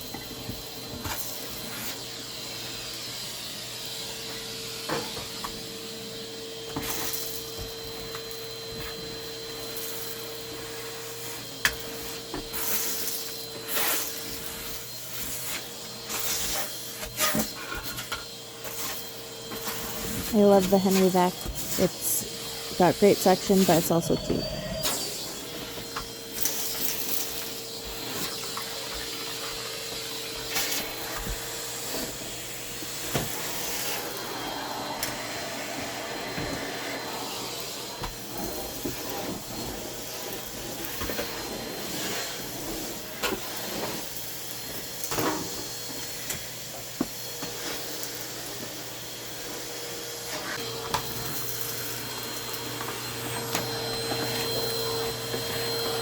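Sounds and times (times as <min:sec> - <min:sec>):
vacuum cleaner humming: 0:00.0 - 0:56.0.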